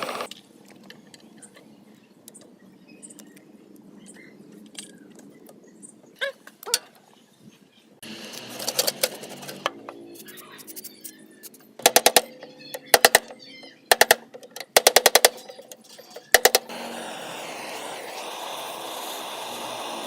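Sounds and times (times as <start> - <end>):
power tool running: 0.0 - 0.3, 8.0 - 9.6, 16.7 - 20.0.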